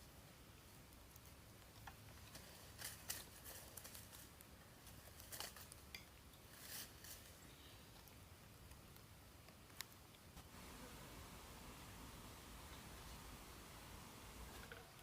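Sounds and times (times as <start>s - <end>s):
faint scratchy sounds: 0.0s - 15.0s.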